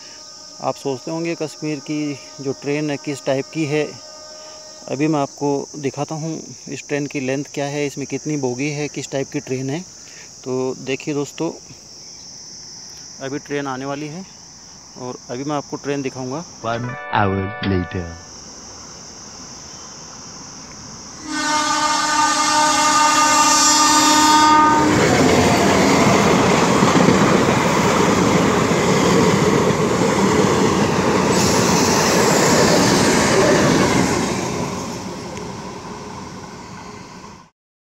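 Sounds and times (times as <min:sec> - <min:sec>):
train horn: 0:00.0 - 0:05.3, 0:16.7 - 0:18.3, 0:21.2 - 0:25.5
high-pitched insect drone: 0:00.0 - 0:16.9, 0:18.0 - 0:37.2
train rumble and wheel clatter: 0:22.7 - 0:37.4.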